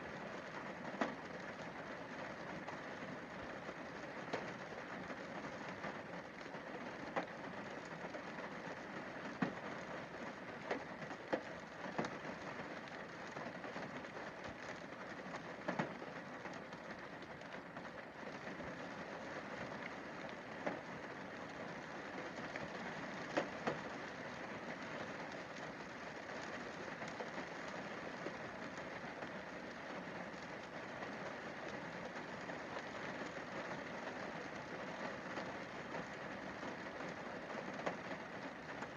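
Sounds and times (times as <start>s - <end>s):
rain hissing on windscreen: 0.0s - 38.9s.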